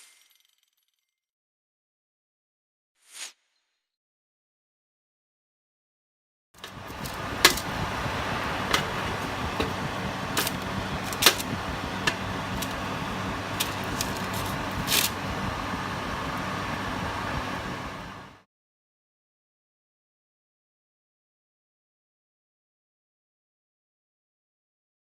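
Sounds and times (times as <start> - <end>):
fan oven humming: 6.6 - 18.4.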